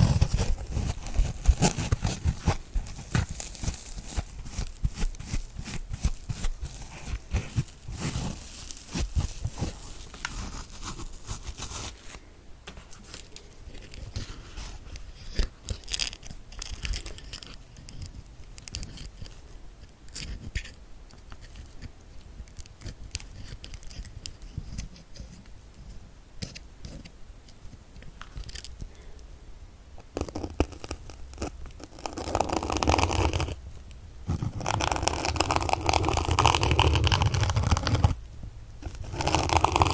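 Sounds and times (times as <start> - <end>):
needles poking a sponge: 0.0 - 12.8, 34.3 - 38.2, 38.8 - 39.9.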